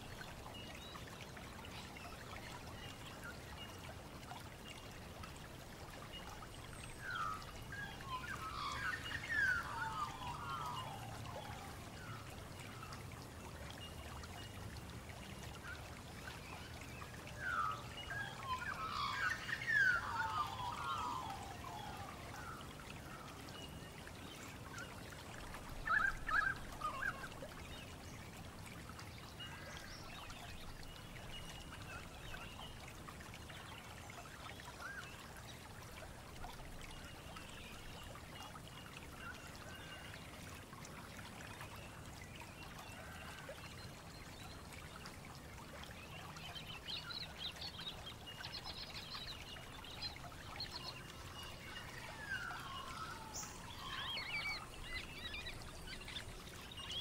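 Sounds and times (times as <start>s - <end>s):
birds calling in a chorus: 17.4s - 22.6s.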